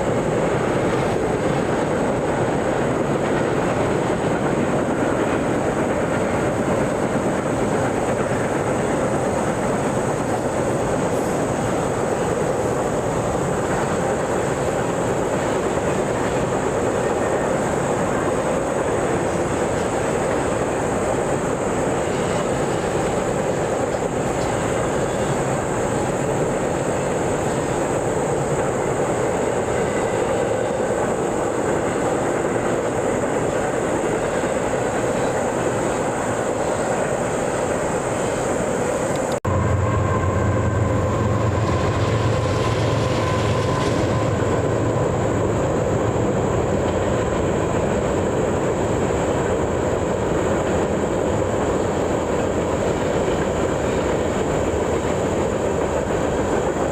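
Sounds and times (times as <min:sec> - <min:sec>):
train wheels clacking on rails: 0:00.0 - 0:56.9
heavy low rumble: 0:39.5 - 0:46.2.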